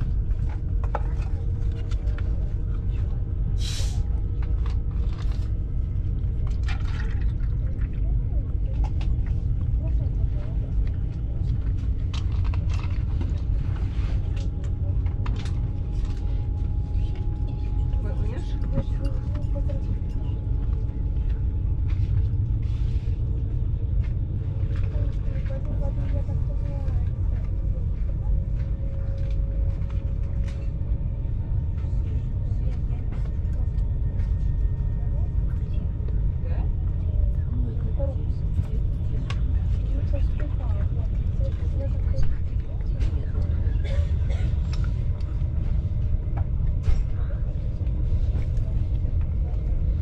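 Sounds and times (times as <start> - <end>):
train rumbling: 0.0 - 50.0.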